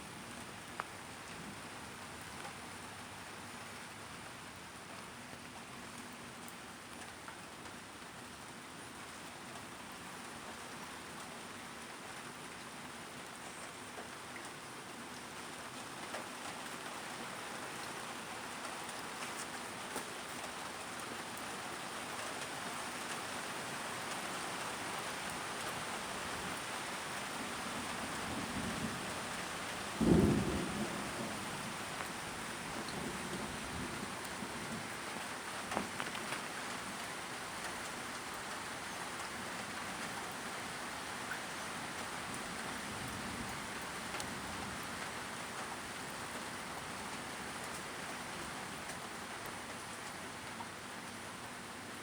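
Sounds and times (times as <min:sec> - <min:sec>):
steady rain falling: 0:00.0 - 0:52.0
thunder rumble and thunderclap: 0:30.0 - 0:31.8.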